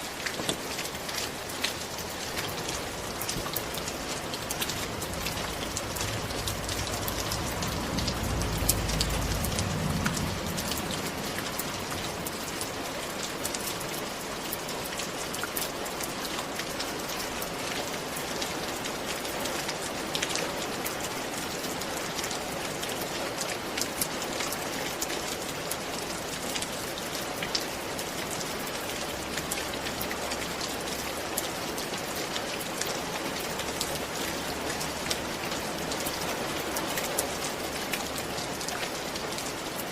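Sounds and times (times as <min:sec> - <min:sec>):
steady rain falling: 0:00.0 - 0:39.9
soft low rumble: 0:04.7 - 0:12.3.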